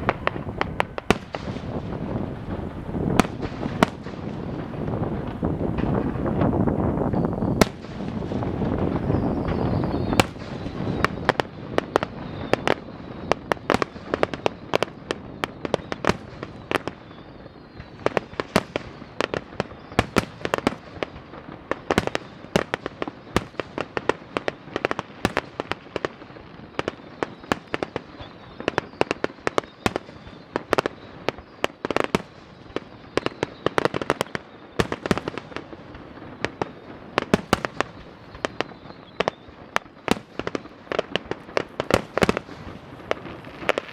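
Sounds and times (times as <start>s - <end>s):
crackling hiss: 0.0s - 43.9s
fireworks bangs: 0.0s - 43.9s.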